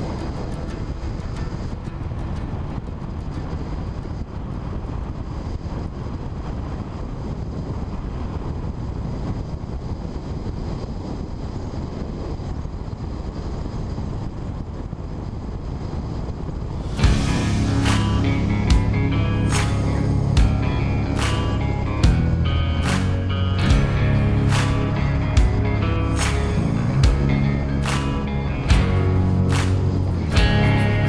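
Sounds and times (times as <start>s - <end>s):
wind noise on microphone: 0.0s - 31.0s
motorcycle engine running: 17.0s - 31.0s.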